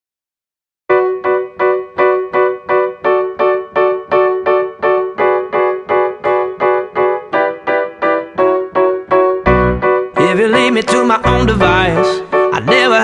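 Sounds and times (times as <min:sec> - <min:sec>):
repeated piano chord: 0:00.9 - 0:13.0.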